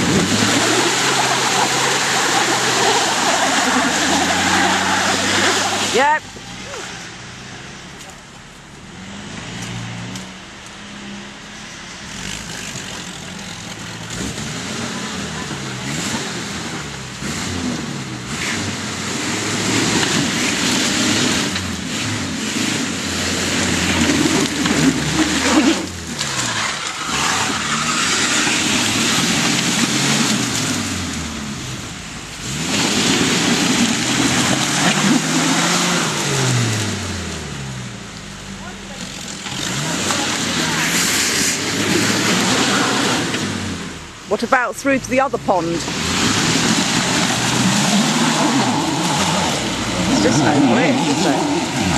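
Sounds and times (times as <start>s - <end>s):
engine revving under load: 0.0s - 7.9s, 8.9s - 51.9s
dense rushing noise: 45.6s - 51.9s.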